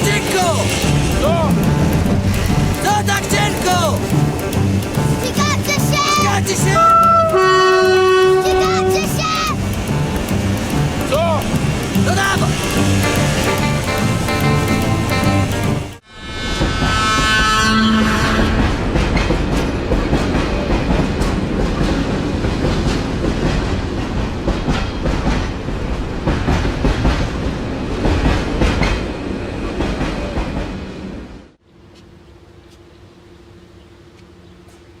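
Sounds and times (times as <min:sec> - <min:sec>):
train wheels clacking on rails: 0:00.0 - 0:16.0, 0:18.8 - 0:30.8
train horn: 0:06.8 - 0:09.2, 0:16.2 - 0:19.1.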